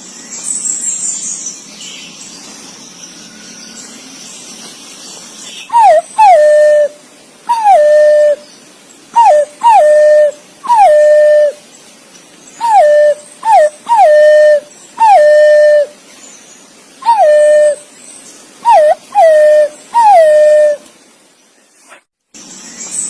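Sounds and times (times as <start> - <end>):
pigeon whistled calls: 5.7 - 8.4, 9.2 - 11.6, 12.6 - 15.9, 17.0 - 17.8, 18.6 - 20.8.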